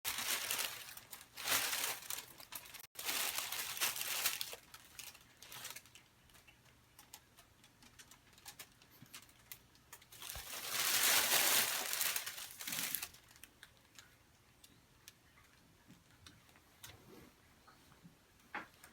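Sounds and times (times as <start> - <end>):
crinkling and rustling: 0.1 - 14.2.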